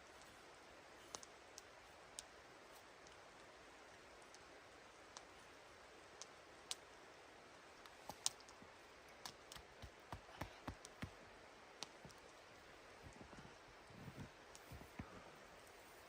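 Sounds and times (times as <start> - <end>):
low steady hiss: 0.0 - 16.0
sharp clicks and snaps: 7.8 - 8.6.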